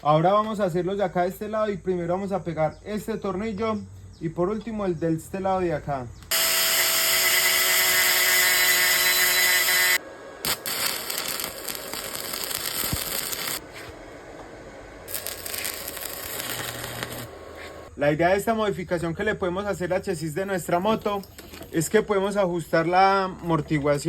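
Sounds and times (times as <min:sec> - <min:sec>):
crackling weld: 0:06.2 - 0:13.7, 0:15.1 - 0:17.9
welding arc hissing: 0:06.3 - 0:13.9, 0:15.0 - 0:17.9.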